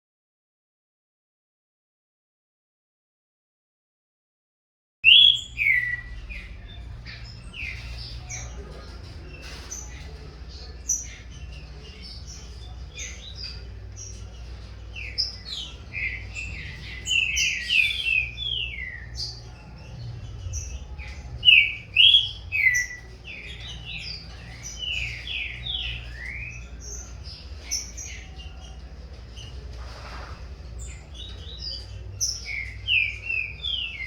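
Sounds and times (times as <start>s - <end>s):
loud whistled birdsong: 5.0s - 34.0s.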